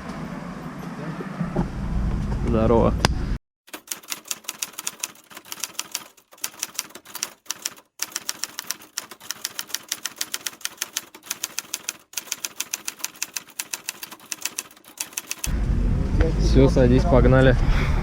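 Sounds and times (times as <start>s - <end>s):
rapid sharp clicking: 3.7s - 15.5s.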